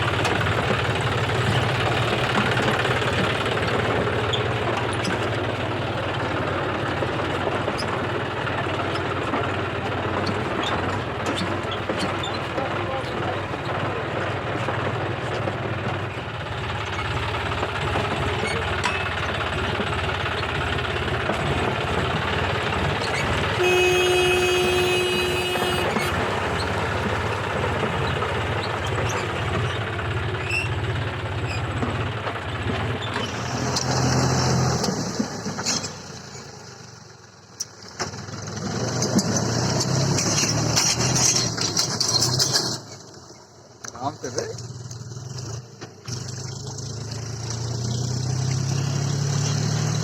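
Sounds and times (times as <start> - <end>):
tractor diesel engine running: 0.0 - 50.0
vehicle horn: 23.4 - 26.8.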